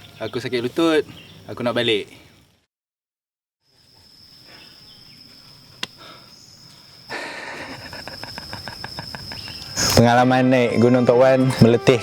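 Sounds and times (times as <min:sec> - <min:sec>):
insects droning: 0:03.6 - 0:12.0.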